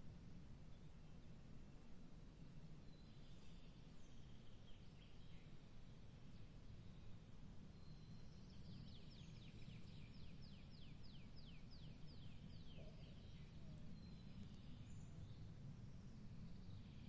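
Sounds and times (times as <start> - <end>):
low steady rumble: 0.0 - 17.0
songbird singing downward notes: 7.7 - 17.0.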